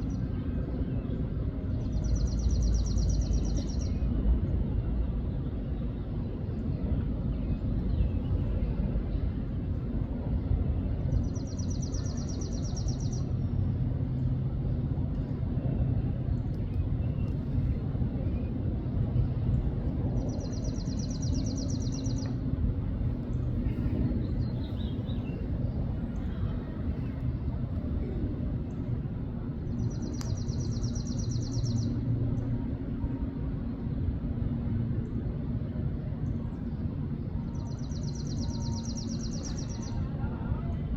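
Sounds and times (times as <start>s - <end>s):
steady low rumble: 0.0s - 40.9s
faint bird chirps: 37.5s - 40.7s
songbird trilling: 37.6s - 40.0s.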